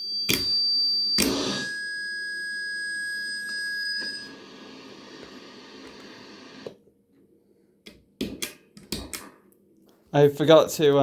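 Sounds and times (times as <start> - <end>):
distorted hiss: 4.2 - 6.8.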